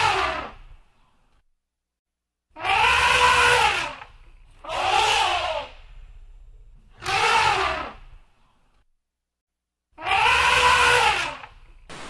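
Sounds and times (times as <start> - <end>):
elephant trumpeting: 2.6 - 5.8, 7.0 - 8.1, 10.0 - 11.6.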